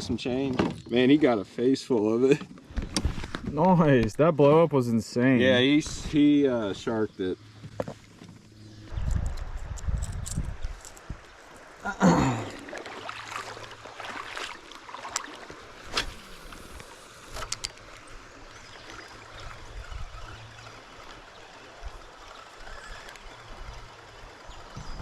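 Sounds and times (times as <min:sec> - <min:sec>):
creek water flowing: 0:10.9 - 0:25.0.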